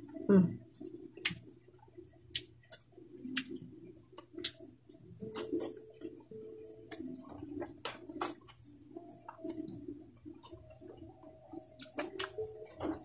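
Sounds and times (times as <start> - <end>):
chewing with wet mouth clicks: 0.8 - 13.0.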